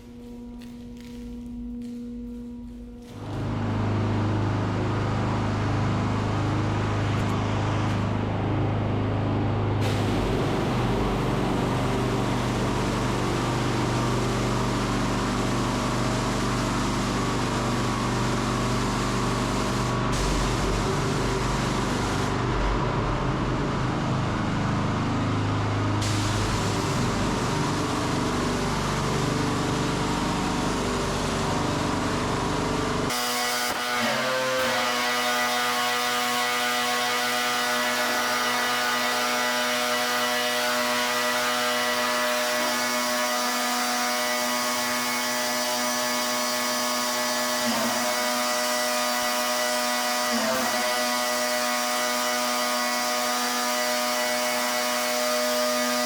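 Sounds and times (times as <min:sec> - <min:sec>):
pressure washer motor hum: 0:00.0 - 0:56.0.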